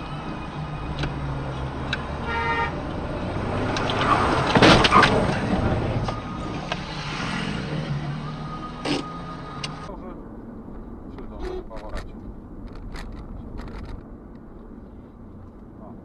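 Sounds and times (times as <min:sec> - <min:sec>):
traffic rumble: 0:00.0 - 0:16.0
car horn toot: 0:02.2 - 0:02.8.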